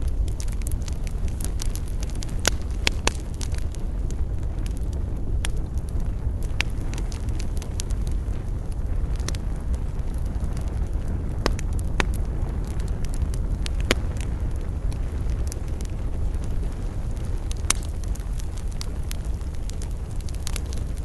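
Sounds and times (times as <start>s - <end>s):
campfire crackling: 0.0s - 21.0s
fire popping: 0.0s - 21.0s.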